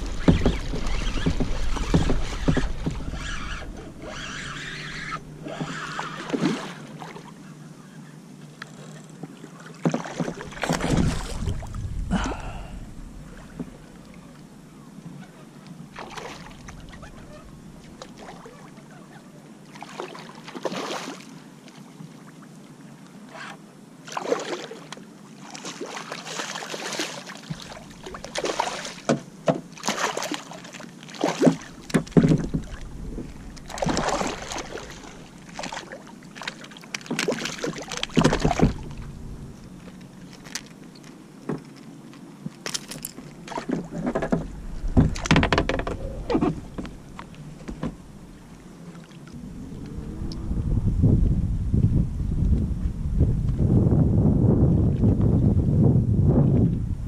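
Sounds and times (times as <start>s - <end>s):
water splashing against kayak: 0.0s - 7.5s, 8.7s - 14.5s, 15.2s - 22.3s, 23.3s - 52.6s.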